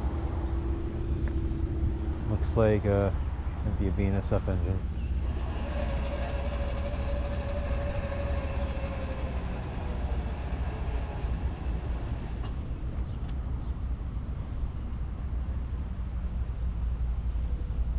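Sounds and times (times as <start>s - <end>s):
locomotive rumbling: 0.0s - 17.9s
steady whine: 3.7s - 13.4s.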